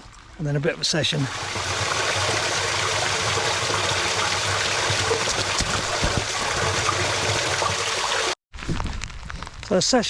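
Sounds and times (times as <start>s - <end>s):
sharp taps of raindrops: 4.9s - 6.4s.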